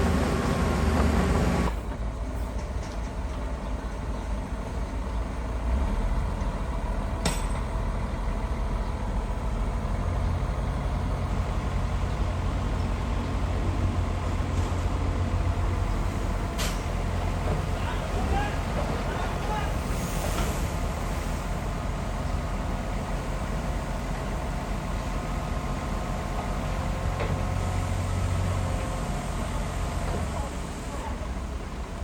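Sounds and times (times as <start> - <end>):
heavy diesel engine rumbling: 0.0 - 32.0.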